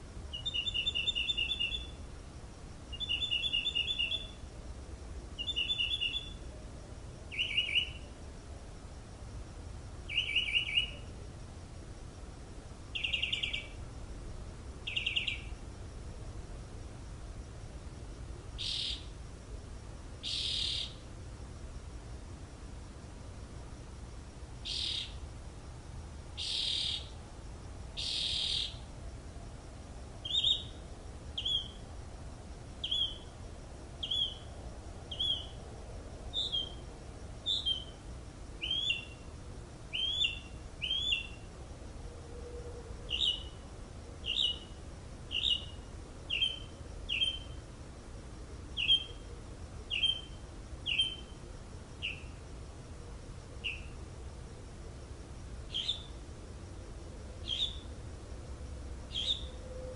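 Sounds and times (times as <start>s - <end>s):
bird chirping: 0.3s - 2.0s, 2.9s - 4.5s, 5.4s - 6.5s, 7.3s - 8.1s, 10.1s - 11.1s, 12.9s - 13.8s, 14.8s - 15.6s, 18.6s - 19.1s, 20.2s - 21.0s, 24.6s - 25.2s, 26.4s - 27.2s, 28.0s - 28.8s, 30.2s - 30.8s, 31.4s - 31.9s, 32.8s - 33.3s, 34.0s - 34.5s, 35.1s - 35.6s, 36.3s - 36.8s, 37.4s - 38.0s, 38.6s - 39.3s, 39.9s - 41.5s, 43.1s - 43.6s, 44.2s - 47.6s, 48.8s - 49.3s, 49.9s - 51.4s, 52.0s - 52.4s, 53.6s - 54.0s, 55.7s - 56.2s, 57.4s - 57.9s, 59.1s - 59.9s
bird giving raspy calls: 18.6s - 19.1s, 20.2s - 21.0s, 24.6s - 25.2s, 26.4s - 27.1s, 28.0s - 28.8s, 59.1s - 59.5s.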